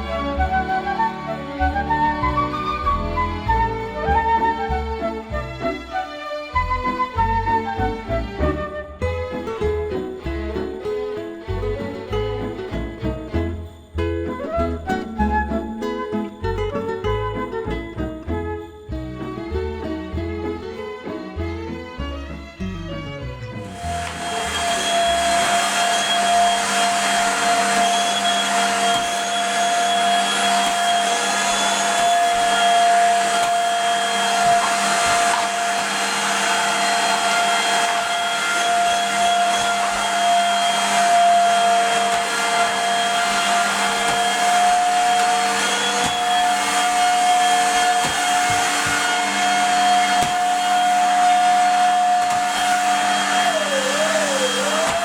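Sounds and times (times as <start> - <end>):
vacuum cleaner running: 0.0 - 9.5, 23.6 - 55.0.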